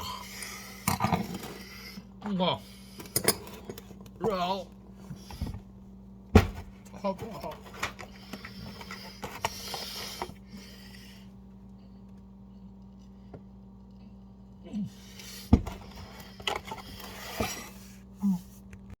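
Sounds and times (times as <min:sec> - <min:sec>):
person breathing: 0:08.1 - 0:12.0.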